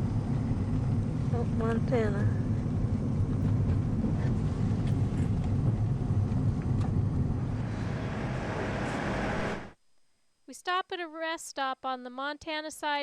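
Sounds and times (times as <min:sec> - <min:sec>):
vehicle road and engine noise: 0:00.0 - 0:09.8.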